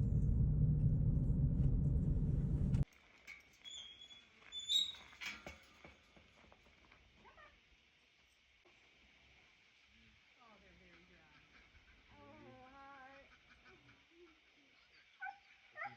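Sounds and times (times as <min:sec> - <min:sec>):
car driving rumble: 0:00.0 - 0:02.8.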